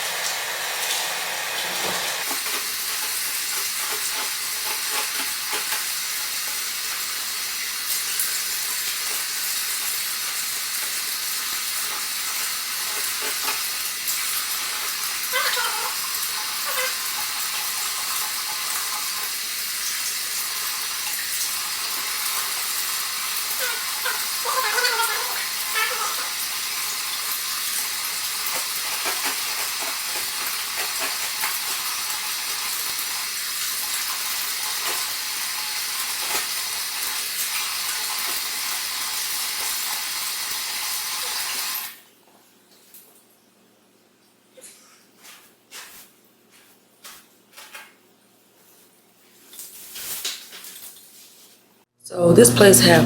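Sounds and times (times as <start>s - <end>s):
water running from sink tap: 0.0s - 42.0s.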